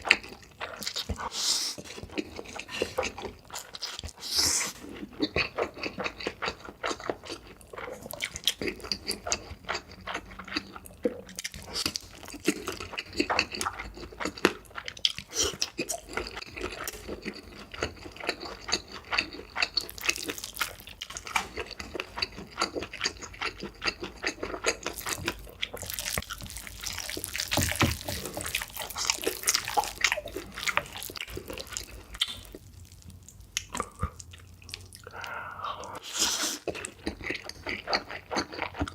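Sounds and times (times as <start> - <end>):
wet chewing: 0.0 - 38.9.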